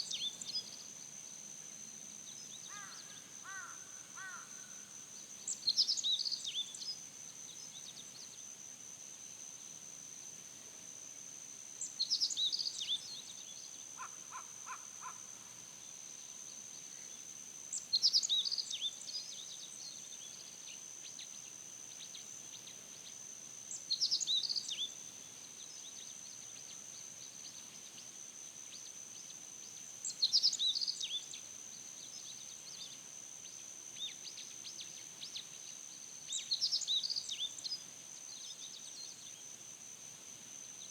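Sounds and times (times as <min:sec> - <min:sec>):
faint crow caws: 0:02.7 - 0:04.8, 0:14.0 - 0:15.4.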